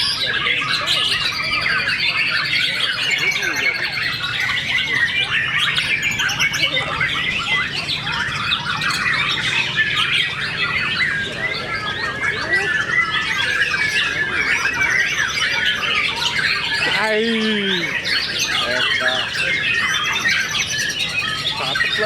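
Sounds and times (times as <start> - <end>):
songbird chorus: 0.0 - 22.0.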